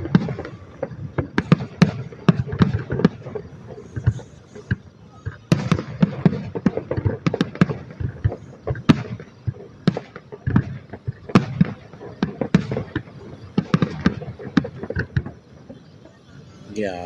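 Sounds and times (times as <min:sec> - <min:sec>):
fireworks banging and crackling: 0:00.0 - 0:17.0.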